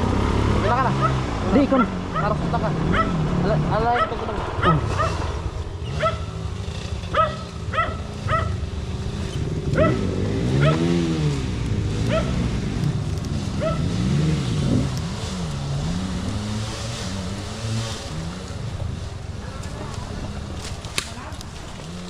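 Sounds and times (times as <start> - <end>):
engine idling with light revs: 0.0 - 22.0
dog barking: 0.9 - 3.2, 3.8 - 5.3, 5.9 - 6.4, 7.1 - 8.6, 9.8 - 10.9, 12.1 - 12.4, 13.6 - 13.9.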